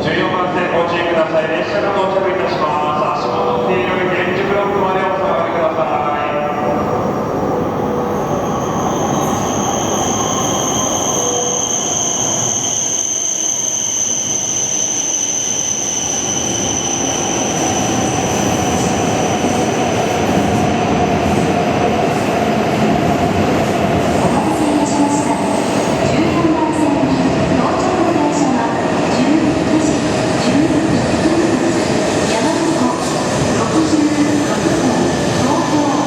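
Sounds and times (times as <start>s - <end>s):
high steady squeal: 8.1s - 20.4s.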